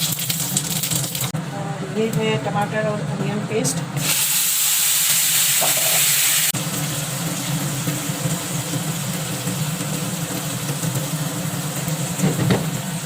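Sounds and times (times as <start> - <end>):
low mechanical hum: 0.1 - 4.1
paste sizzling in a pan: 4.0 - 12.2.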